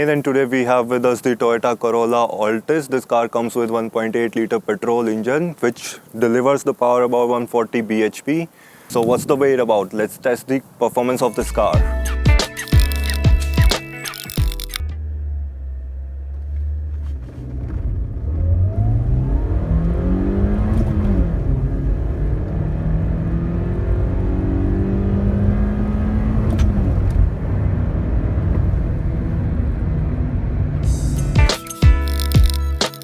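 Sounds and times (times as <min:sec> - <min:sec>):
car engine accelerating hard: 0:15.0 - 0:31.4.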